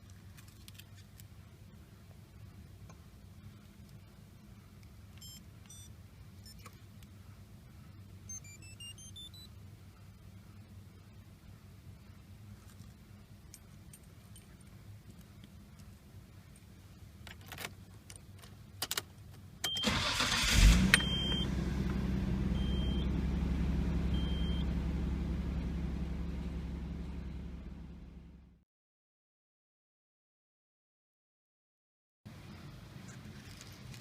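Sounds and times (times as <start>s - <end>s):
car engine starting and idling: 19.6s - 28.6s.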